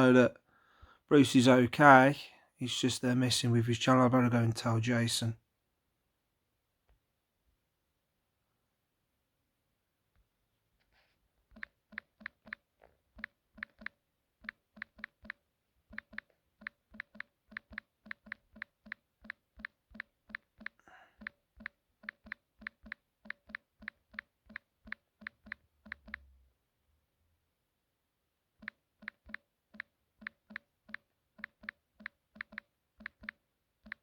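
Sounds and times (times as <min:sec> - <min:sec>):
touchscreen keyboard clicks: 0:11.5 - 0:26.3, 0:28.6 - 0:34.0.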